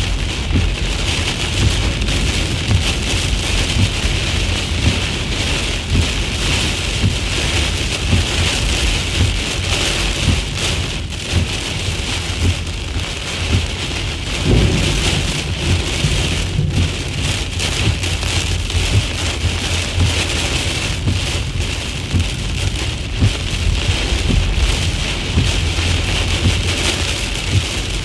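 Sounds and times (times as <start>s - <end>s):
heavy rain pouring: 0.0s - 28.0s
low thunder rumble: 12.7s - 28.0s.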